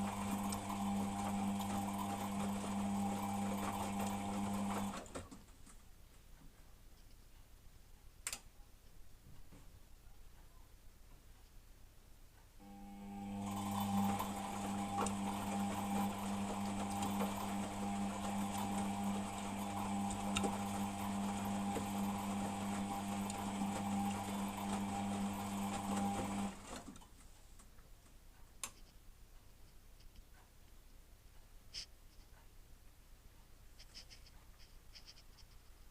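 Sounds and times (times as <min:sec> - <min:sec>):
washing machine humming: 0:00.0 - 0:05.3, 0:12.6 - 0:27.1.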